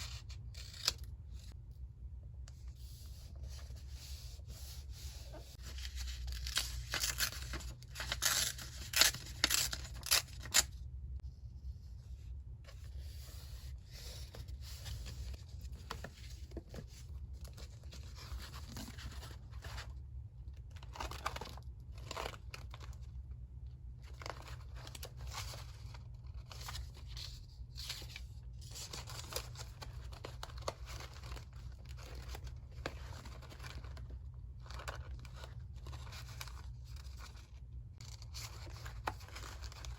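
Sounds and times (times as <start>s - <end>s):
paper rustling and scraping: 2.6s - 10.7s, 24.1s - 39.9s.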